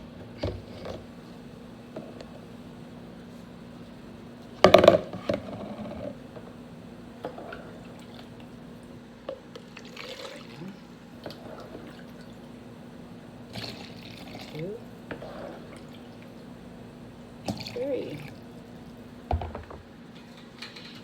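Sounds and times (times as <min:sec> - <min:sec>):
broth pouring and splashing: 0:09.7 - 0:12.6, 0:13.4 - 0:16.5, 0:17.3 - 0:19.1.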